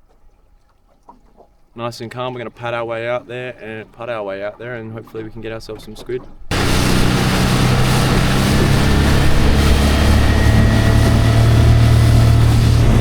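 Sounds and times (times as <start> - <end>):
outboard motor running: 6.5 - 13.0
rushing noise: 6.5 - 13.0.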